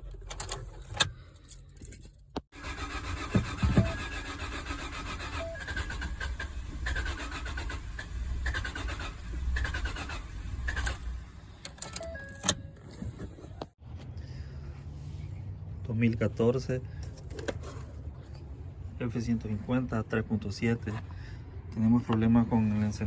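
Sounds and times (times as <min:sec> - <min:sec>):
engine cranking by starter: 0:02.6 - 0:11.4.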